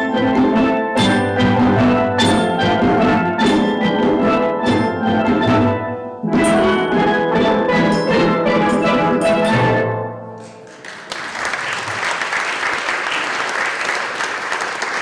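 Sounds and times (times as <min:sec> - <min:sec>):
steel drum band playing: 0:00.0 - 0:10.7
percussion: 0:00.0 - 0:13.6.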